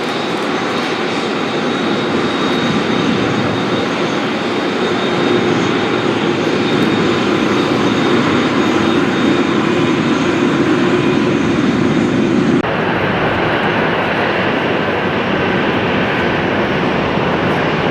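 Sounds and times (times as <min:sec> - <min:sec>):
airliner engines running: 0:00.0 - 0:17.9.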